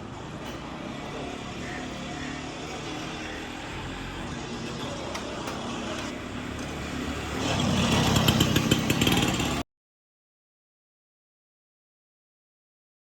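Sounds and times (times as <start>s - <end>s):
road traffic: 0.0s - 9.7s.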